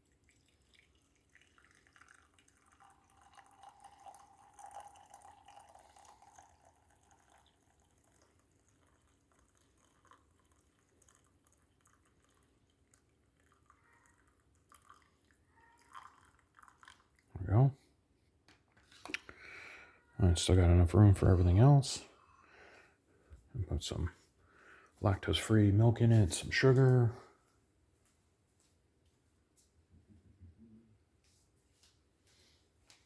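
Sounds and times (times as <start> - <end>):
coffee pouring into a mug: 0.0 - 17.4.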